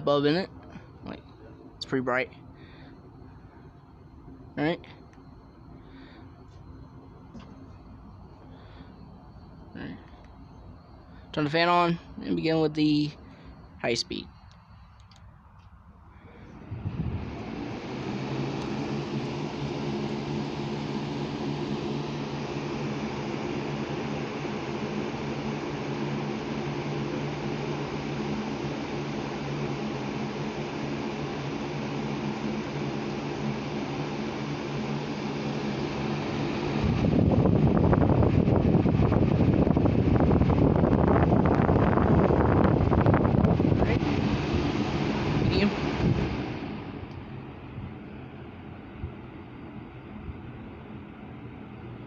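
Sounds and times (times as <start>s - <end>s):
ceiling fan whoosh and motor hum: 0.0s - 52.0s
wind buffeting microphone: 16.5s - 17.6s, 36.7s - 46.8s.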